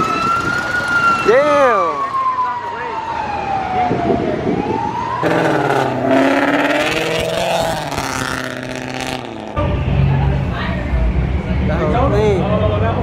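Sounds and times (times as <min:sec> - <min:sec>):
car engine revving: 0:05.2 - 0:09.6.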